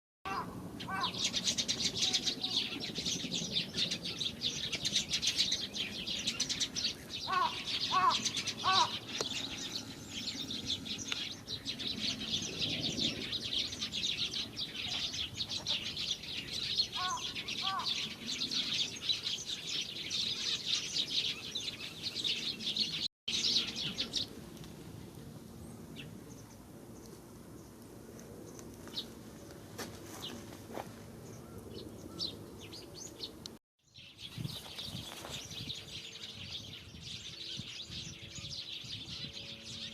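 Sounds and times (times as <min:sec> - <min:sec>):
low-pitched bird call: 0:00.3 - 0:01.4, 0:07.2 - 0:11.2, 0:16.9 - 0:18.7
small birds chirping: 0:00.3 - 0:29.6, 0:31.2 - 0:39.9.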